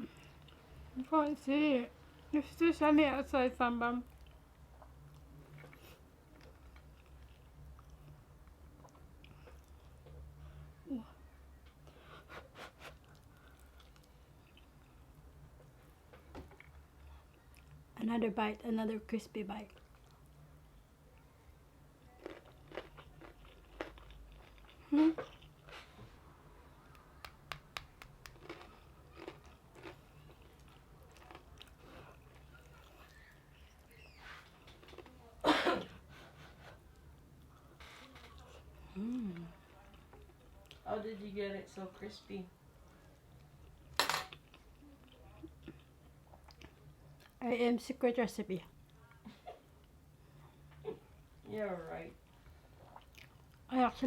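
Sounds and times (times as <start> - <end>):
chewing crispy food: 4.0 - 10.2, 12.8 - 15.4, 22.0 - 26.0, 26.9 - 35.2, 43.0 - 47.4, 52.2 - 53.7
person chewing crunchy food: 22.1 - 25.9, 27.7 - 33.2.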